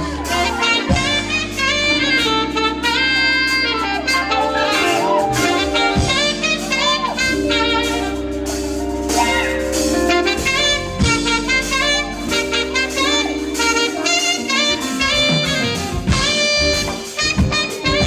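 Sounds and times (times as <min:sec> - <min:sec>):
bass line: 0:00.0 - 0:18.0
drum kit: 0:00.0 - 0:18.0
saxophone melody: 0:00.0 - 0:18.0.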